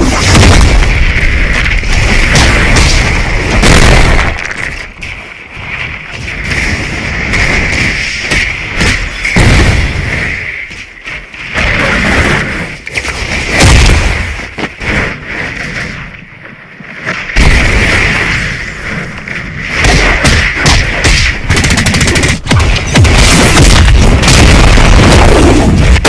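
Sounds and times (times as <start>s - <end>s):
loud distorted booms: 0.0s - 4.5s, 19.8s - 26.0s
rapid cracking bursts: 19.6s - 26.0s.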